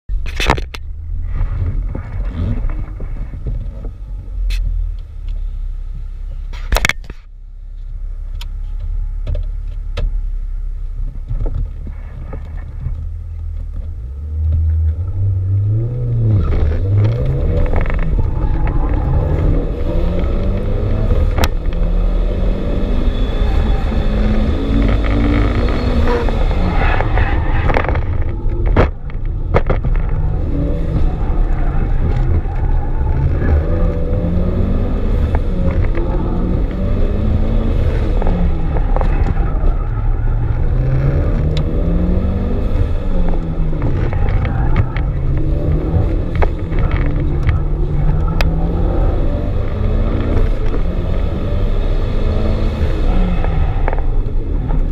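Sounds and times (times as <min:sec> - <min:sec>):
car engine revving: 0:00.3 - 0:05.6, 0:09.9 - 0:54.9.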